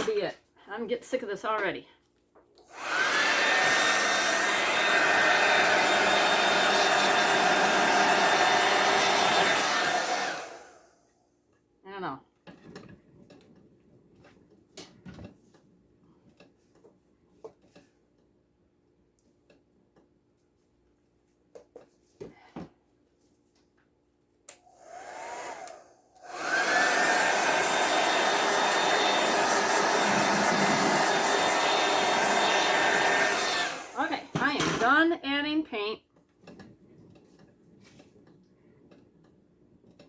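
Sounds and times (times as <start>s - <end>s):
hair dryer blowing: 2.6s - 11.0s, 24.5s - 34.9s.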